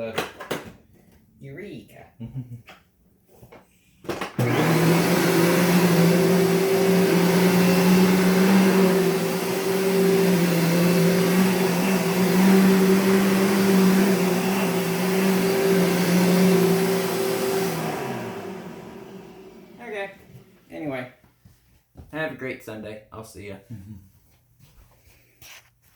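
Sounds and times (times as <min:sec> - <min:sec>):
upright vacuum running: 0:04.3 - 0:20.7.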